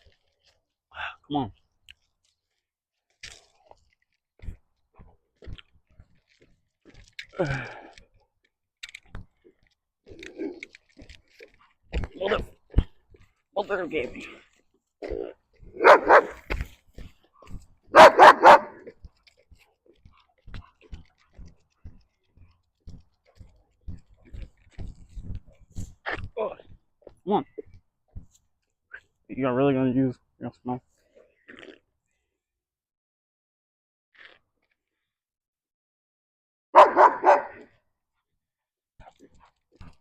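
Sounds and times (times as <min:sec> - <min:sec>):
dog barking: 0:15.8 - 0:16.4, 0:17.9 - 0:18.9, 0:36.7 - 0:37.7.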